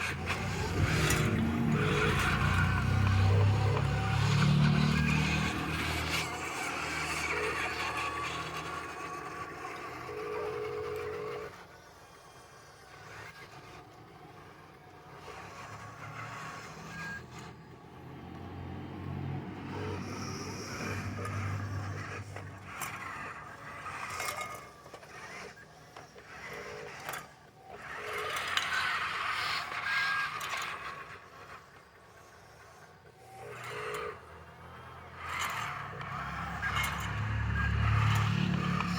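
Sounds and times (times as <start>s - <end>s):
scraping and rattling: 0.0s - 10.3s.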